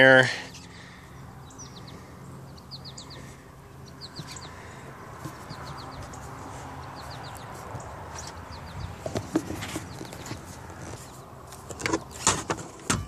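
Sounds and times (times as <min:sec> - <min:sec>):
songbird high chirps: 0:00.5 - 0:09.1.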